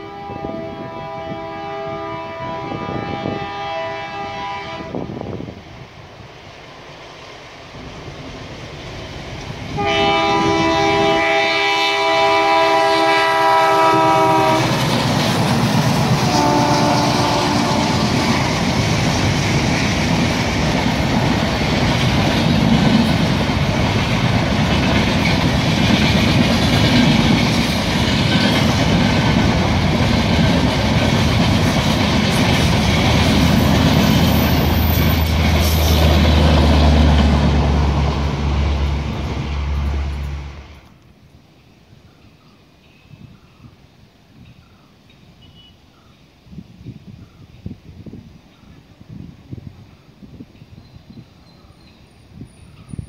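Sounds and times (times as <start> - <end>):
locomotive horn blasts: 0.0 - 5.2, 9.8 - 14.8, 16.2 - 18.2
train rumbling past: 0.0 - 45.5
wheels clacking over rail joints: 13.8 - 40.4.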